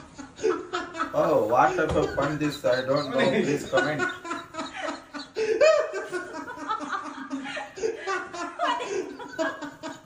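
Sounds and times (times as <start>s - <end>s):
people laughing: 0.0s - 10.0s
people talking: 1.1s - 4.6s.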